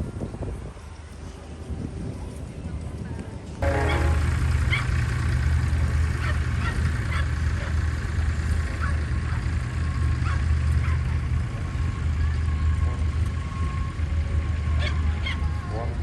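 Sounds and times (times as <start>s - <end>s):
short high chirps: 3.6s - 4.9s.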